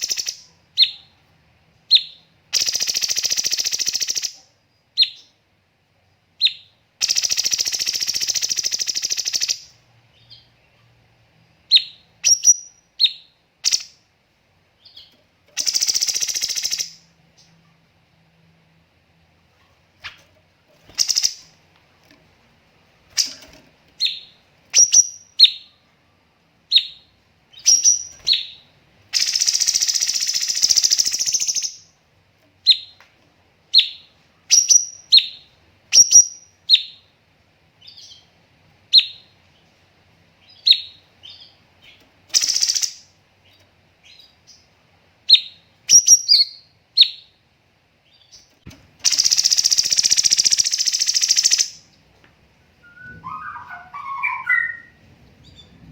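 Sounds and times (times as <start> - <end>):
bird singing sharp chirps: 52.8 - 55.0.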